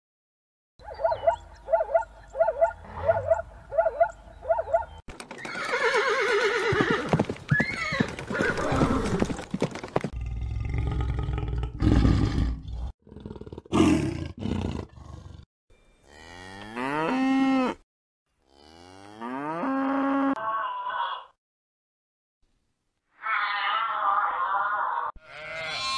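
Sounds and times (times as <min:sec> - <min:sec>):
busy noisy animal calls: 0:00.9 - 0:05.0
cattle mooing: 0:16.1 - 0:17.8, 0:18.5 - 0:21.3, 0:25.1 - 0:25.9.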